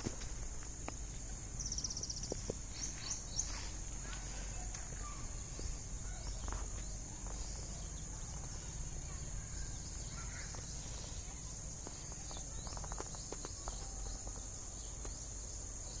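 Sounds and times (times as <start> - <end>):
insects droning: 0.0 - 16.0
faint clicks: 10.2 - 15.3.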